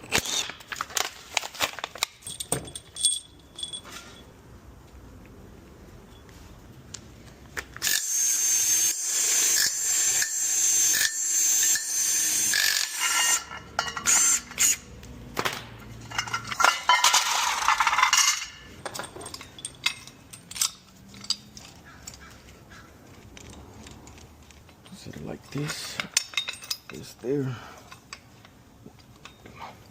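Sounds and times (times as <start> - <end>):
metallic clinks of tools: 2.2 - 4.3, 12.5 - 14.8, 16.1 - 22.3, 23.4 - 28.3
handheld power tool running: 7.8 - 13.5.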